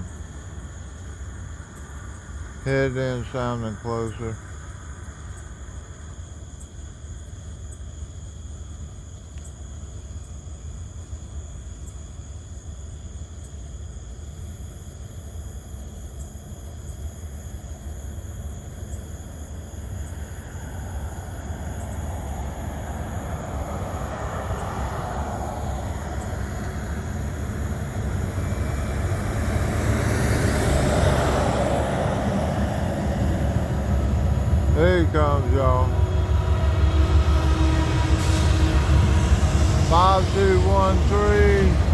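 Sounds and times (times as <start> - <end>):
diesel locomotives rumbling: 0.0 - 5.6, 17.6 - 41.9
rushing train noise: 0.0 - 7.5, 14.2 - 41.9.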